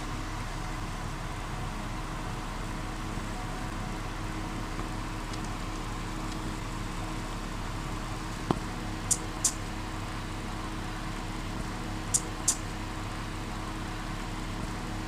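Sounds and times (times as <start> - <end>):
steady low hum: 0.0 - 15.0
moth squeaking: 9.0 - 9.6, 12.1 - 12.7
sharp click: 9.1 - 9.6, 12.1 - 12.7.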